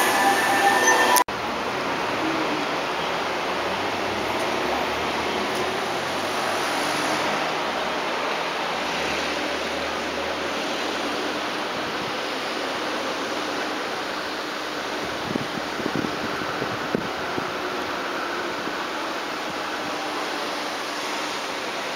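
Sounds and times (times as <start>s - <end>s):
train wheels on rail: 0.0s - 1.2s.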